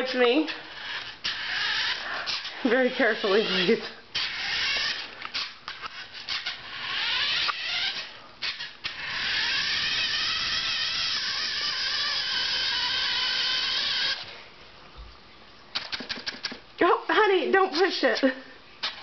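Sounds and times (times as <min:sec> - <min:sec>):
toy truck motor whining: 0:00.5 - 0:14.3.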